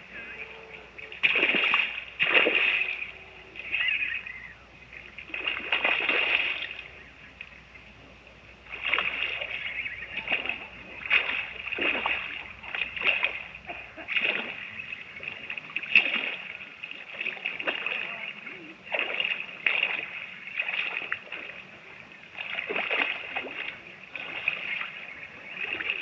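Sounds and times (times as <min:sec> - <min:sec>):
water splashing: 0:00.0 - 0:26.0.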